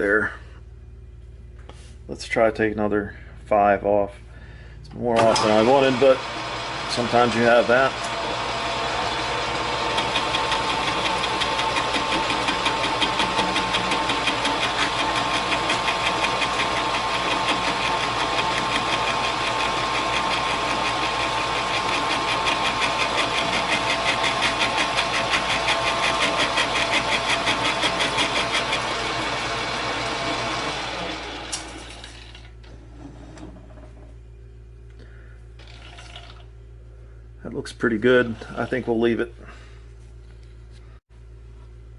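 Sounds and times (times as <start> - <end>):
faint hum: 0.0 - 5.4, 32.6 - 41.9
metal lathe running: 5.2 - 32.4.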